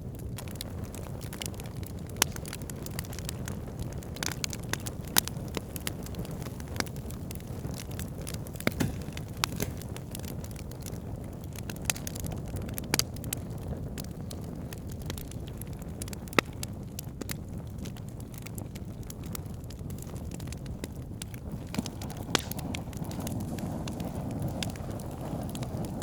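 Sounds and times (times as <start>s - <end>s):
campfire crackling: 0.0s - 26.0s
sharp pops and snaps: 2.1s - 3.2s, 4.2s - 13.1s, 19.9s - 25.7s.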